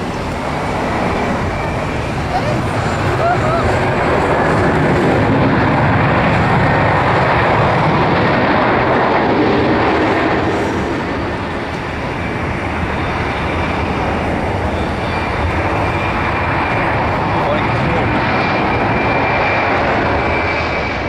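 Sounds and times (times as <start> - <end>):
jet engines rushing: 0.0 - 21.0.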